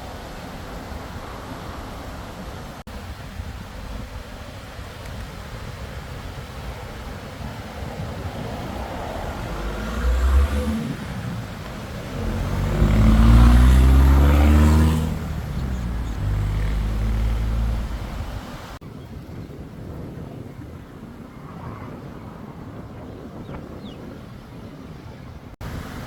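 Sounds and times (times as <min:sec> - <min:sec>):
motor engine passing: 0:08.2 - 0:18.8.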